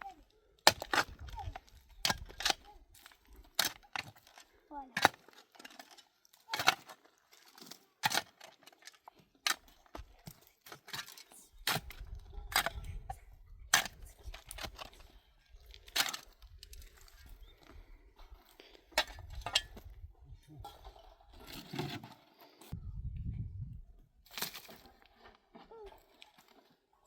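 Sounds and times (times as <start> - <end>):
low rumble: 22.8 - 24.2.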